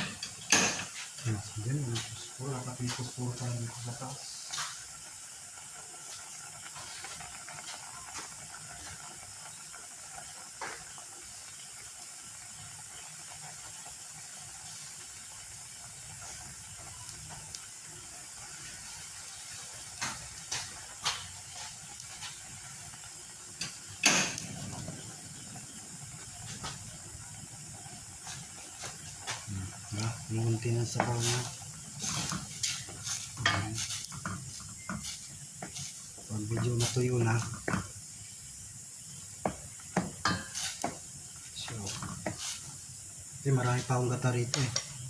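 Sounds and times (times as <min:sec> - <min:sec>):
sauce simmering with hiss: 0:00.0 - 0:45.0.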